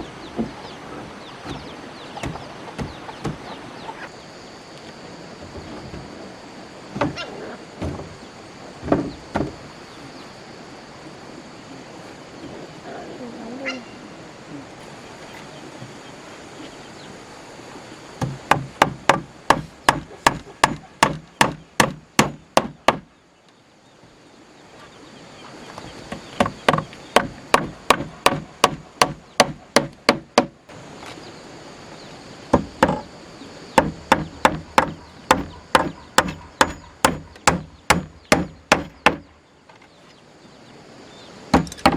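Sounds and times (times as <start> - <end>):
tool striking wood: 18.2 - 23.1, 26.1 - 30.6, 32.5 - 33.1, 33.8 - 39.3, 41.5 - 41.9.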